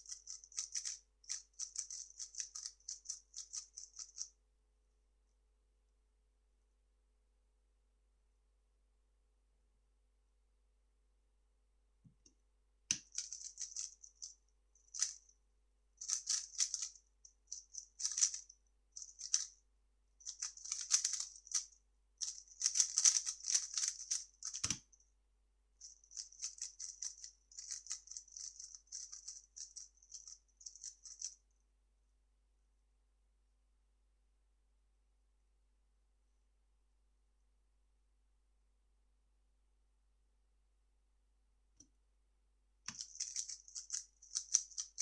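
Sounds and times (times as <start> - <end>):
plastic puzzle cube clicking: 0.2 - 4.2, 18.0 - 18.4, 20.3 - 21.6, 22.6 - 24.8, 42.9 - 45.0.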